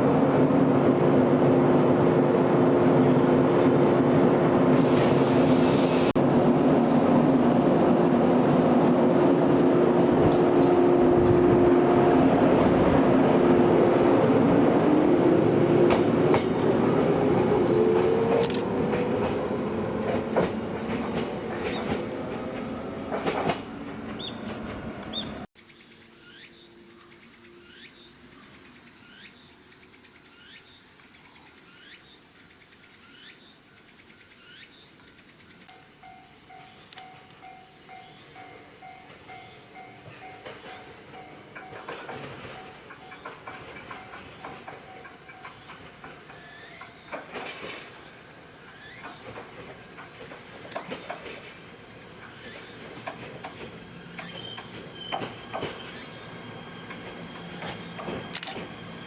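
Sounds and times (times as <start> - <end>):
electric train running: 36.0 - 59.0.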